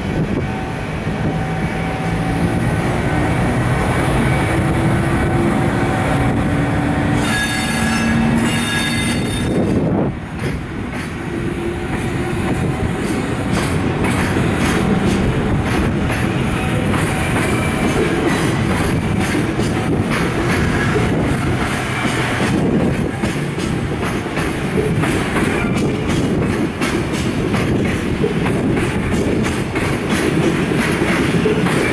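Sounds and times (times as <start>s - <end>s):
wheels rumbling on rail: 0.0s - 31.9s
high-pitched wheel squeal: 7.2s - 9.6s.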